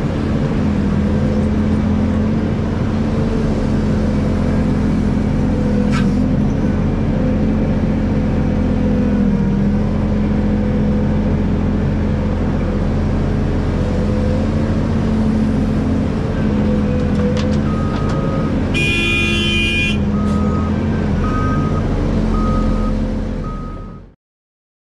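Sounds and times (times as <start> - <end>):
excavator diesel engine running: 0.0 - 24.2
horn: 18.7 - 20.0.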